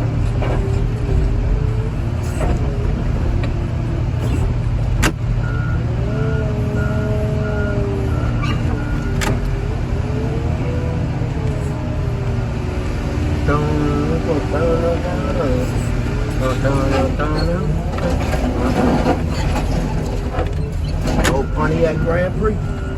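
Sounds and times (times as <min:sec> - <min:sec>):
heavy diesel machinery running: 0:00.0 - 0:22.9
reversing alarm beeping: 0:05.4 - 0:09.7, 0:20.7 - 0:22.9.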